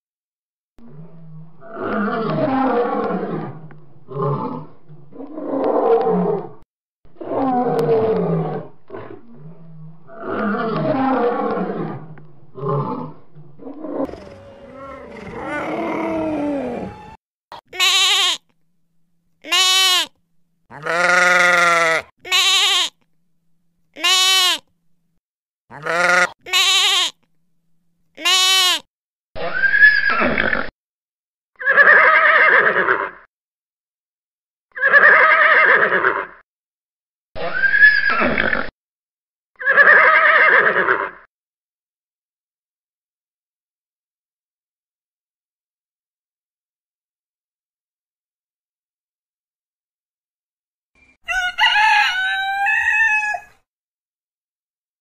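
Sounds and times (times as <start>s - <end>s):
lion roaring and grunting: 0.8s - 17.2s
high rising and falling animal calls: 7.4s - 17.2s, 51.2s - 53.6s
horse whinnying: 31.6s - 33.2s, 34.8s - 36.4s, 39.6s - 41.2s.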